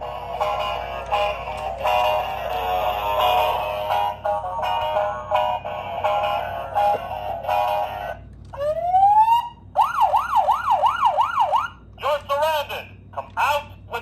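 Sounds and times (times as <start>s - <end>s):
electronic toy siren wailing: 8.6s - 11.8s.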